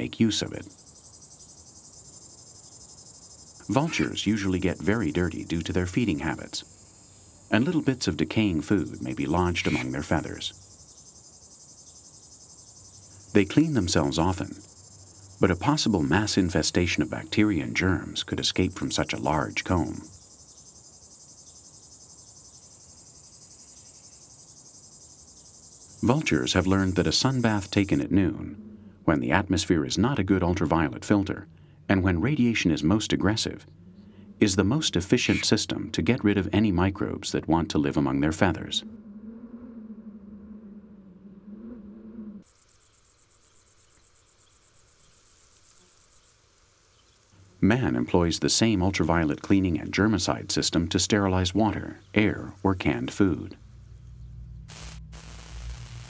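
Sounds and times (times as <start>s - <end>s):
insects trilling: 0.0s - 35.9s, 40.3s - 56.0s
low steady hum: 47.2s - 56.0s.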